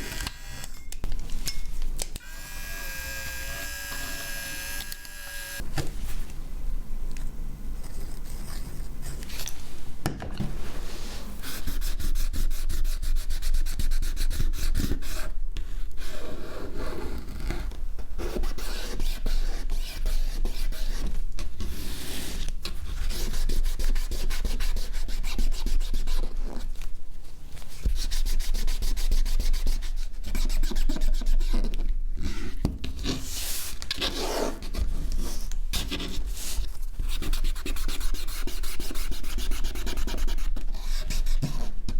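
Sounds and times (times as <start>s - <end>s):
hand tool scraping a phone: 2.2s - 5.6s.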